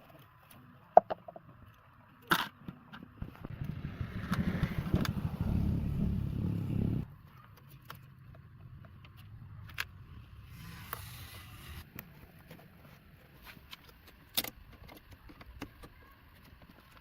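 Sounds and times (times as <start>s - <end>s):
car engine rumbling: 3.2s - 7.1s.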